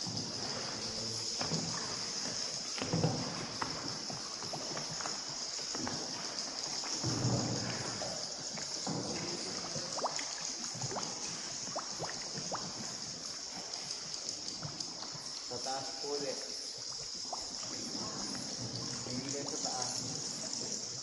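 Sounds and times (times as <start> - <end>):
paddle splashes: 0.0 - 21.0
steady high-pitched hiss: 0.0 - 21.0
water drips: 0.0 - 21.0.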